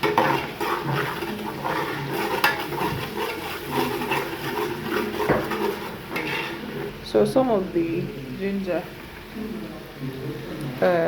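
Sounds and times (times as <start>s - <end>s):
spoon scraping and knocking pot: 0.0s - 6.9s
paste frying in hot oil: 0.0s - 11.0s.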